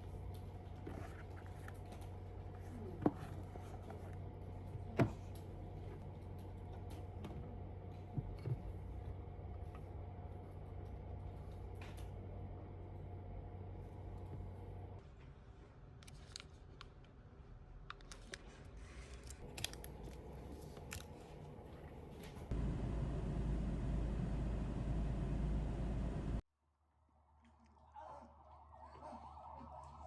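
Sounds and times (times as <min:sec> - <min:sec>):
steady hum: 0:21.5 - 0:26.4.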